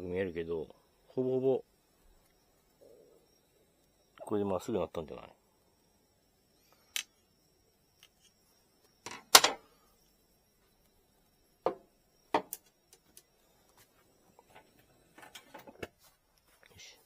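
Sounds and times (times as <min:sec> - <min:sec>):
objects clicking and knocking: 0:09.0 - 0:09.6.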